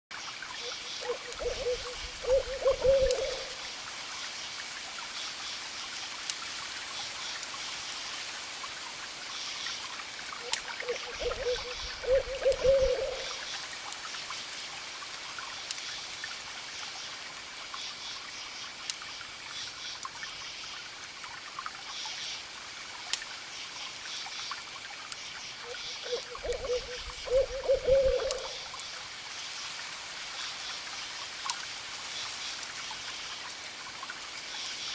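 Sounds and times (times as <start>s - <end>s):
owl hooting: 1.0s - 3.6s, 10.8s - 13.4s, 25.7s - 28.6s
campfire crackling and popping: 1.1s - 3.5s, 5.1s - 19.1s, 22.5s - 24.0s, 28.1s - 29.6s, 30.4s - 31.7s.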